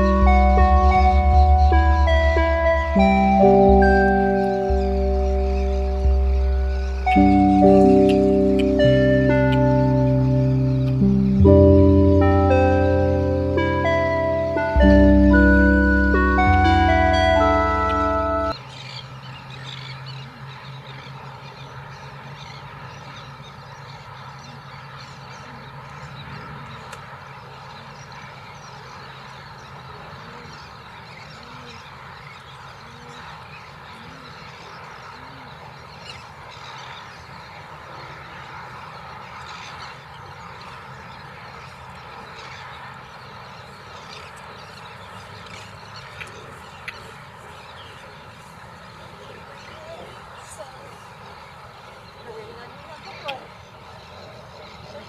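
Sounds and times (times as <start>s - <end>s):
faint bird calls: 19.7s - 55.0s.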